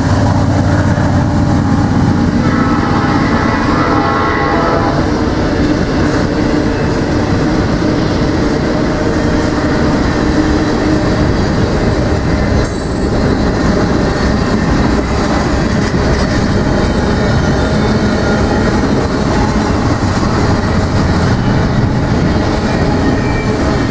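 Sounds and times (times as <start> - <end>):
train wheels rumbling on rails: 0.0 - 23.9
wheel squeal: 22.6 - 23.9.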